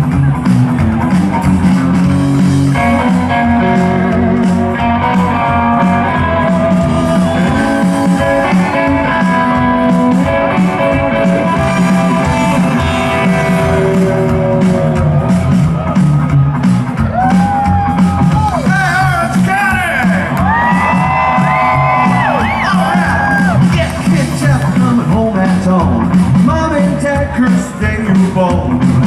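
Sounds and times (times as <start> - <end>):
live rockabilly band playing: 0.0 - 29.0
sustained lead guitar line: 0.0 - 29.0.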